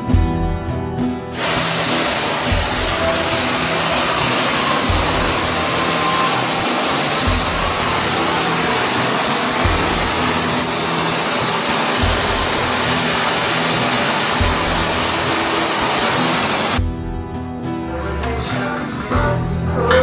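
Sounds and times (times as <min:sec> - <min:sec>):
background music with bass: 0:00.0 - 0:20.0
loud steady hiss: 0:01.3 - 0:16.8.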